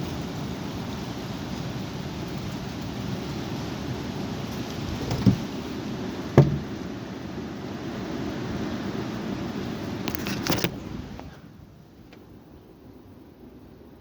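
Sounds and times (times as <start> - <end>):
sharp knocks: 5.0 - 5.5, 6.4 - 6.8.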